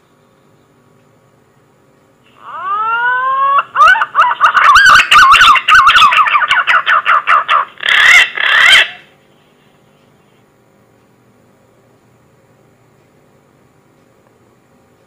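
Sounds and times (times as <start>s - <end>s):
green pigeon whistled song: 2.5s - 9.0s.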